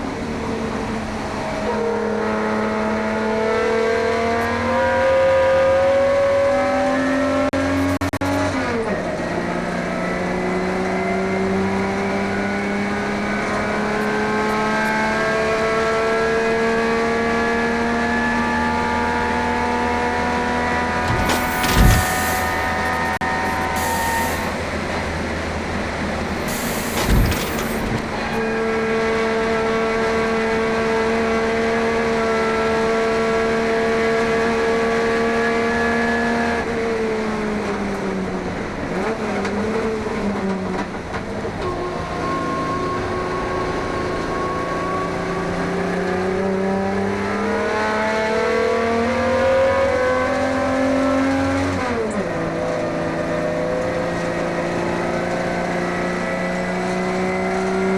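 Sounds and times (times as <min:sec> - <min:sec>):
thump: 0:21.0 - 0:25.1, 0:26.3 - 0:28.4
gear change: 0:21.0 - 0:25.2, 0:26.1 - 0:28.4.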